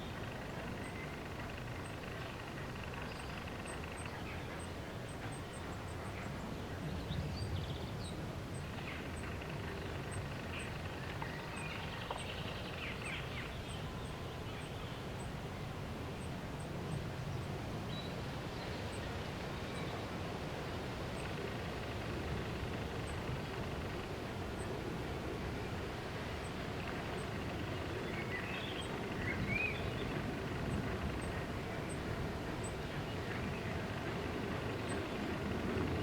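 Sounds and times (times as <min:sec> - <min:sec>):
low outdoor rumble: 0:00.0 - 0:36.0.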